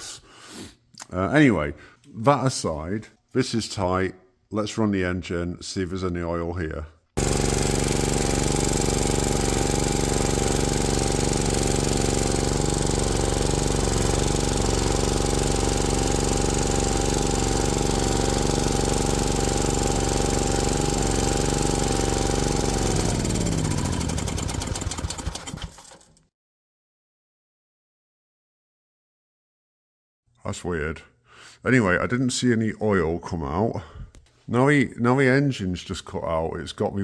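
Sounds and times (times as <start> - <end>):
small engine running and dying: 7.2 - 26.2.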